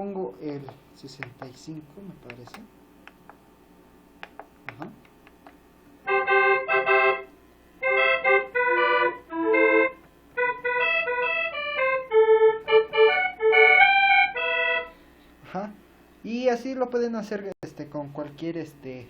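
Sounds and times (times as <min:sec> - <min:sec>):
synthesizer keyboard chords: 0:06.0 - 0:14.9.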